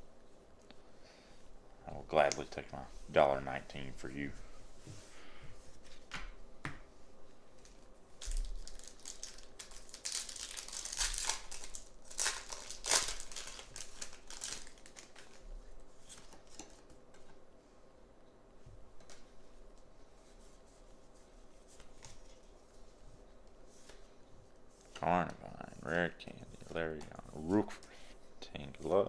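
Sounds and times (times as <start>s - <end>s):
foil wrapper crinkling and tearing: 7.6s - 15.4s.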